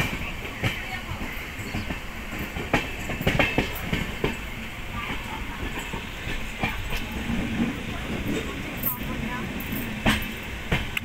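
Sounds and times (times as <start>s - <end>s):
train rumble on board: 0.0s - 11.0s
wheel clacks on rails: 0.0s - 11.0s.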